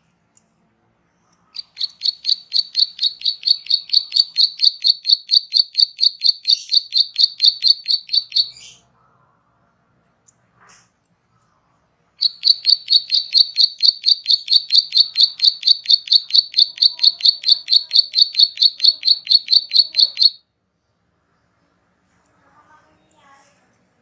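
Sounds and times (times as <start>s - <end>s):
songbird sharp high chirps: 1.6s - 8.8s.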